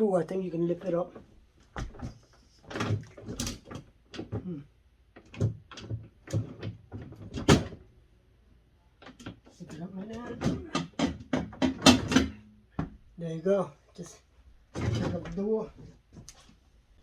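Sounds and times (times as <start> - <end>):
freezer door knocks and clunks: 10.2 - 12.9.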